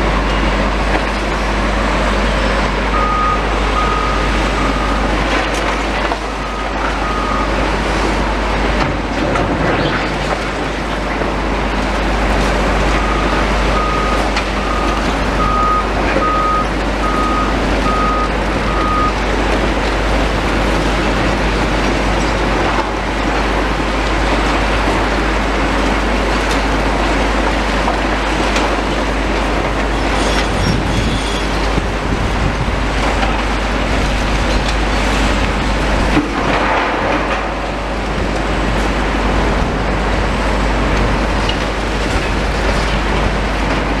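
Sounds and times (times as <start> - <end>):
demolition machinery engine rumble: 0.0 - 44.0
reversing alarm beeping: 2.9 - 5.2, 6.2 - 7.6, 12.9 - 19.2.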